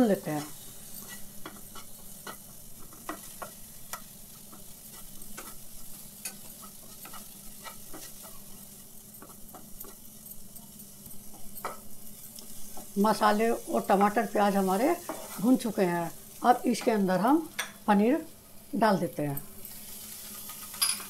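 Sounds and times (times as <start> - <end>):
masala sizzling in a wok: 0.0 - 21.0
wooden spatula scraping a wok: 0.2 - 10.3, 11.3 - 15.7.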